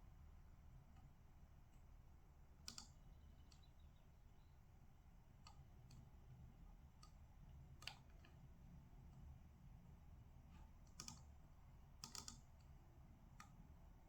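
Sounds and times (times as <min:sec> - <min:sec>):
low steady hum: 0:00.0 - 0:14.0
faint computer clicks: 0:02.6 - 0:03.8, 0:06.9 - 0:08.4, 0:10.5 - 0:11.4, 0:12.0 - 0:13.6.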